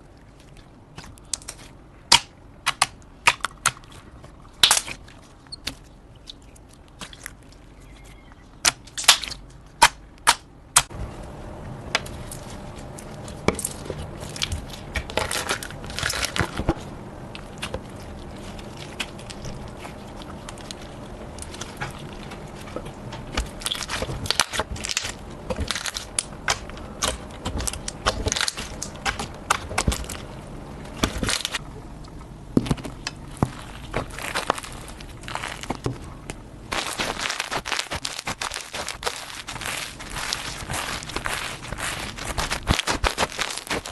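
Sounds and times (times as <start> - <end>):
slime crackling and popping: 4.6 - 7.5, 13.1 - 16.8, 17.4 - 30.3, 32.7 - 43.9.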